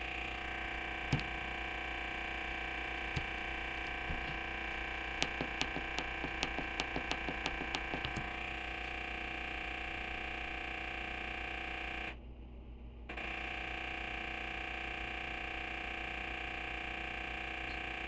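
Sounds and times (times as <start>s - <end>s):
washing machine clicking: 0.0s - 1.7s, 2.8s - 8.4s.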